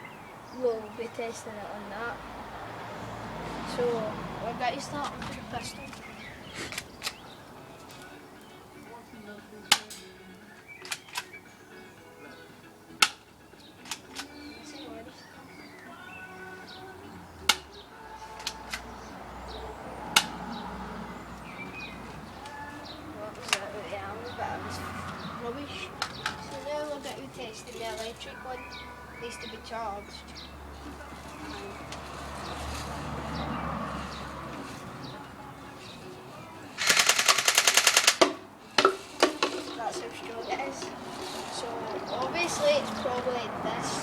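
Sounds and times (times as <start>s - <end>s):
birds chirping: 0.0s - 44.0s
toy gun firing rapid clicks: 36.8s - 38.3s
bb pistol shots: 36.8s - 38.4s.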